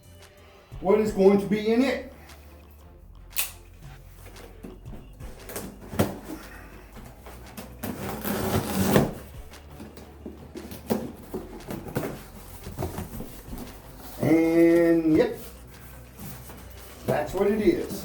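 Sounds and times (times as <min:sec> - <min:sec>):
cardboard scraping rustle: 0:05.4 - 0:18.0
knocks and clunks on cardboard box: 0:07.4 - 0:14.2.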